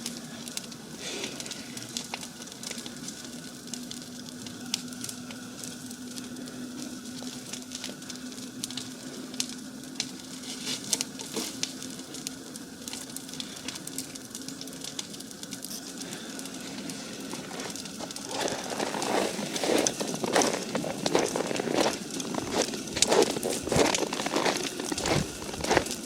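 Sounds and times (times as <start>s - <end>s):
bonfire crackling and popping: 0.0s - 26.0s
footsteps crunching in snow: 17.3s - 26.0s.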